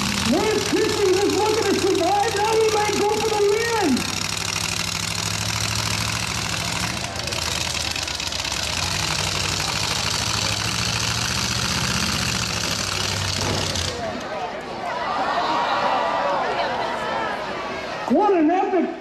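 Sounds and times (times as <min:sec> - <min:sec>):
truck engines rumbling: 0:00.0 - 0:15.1.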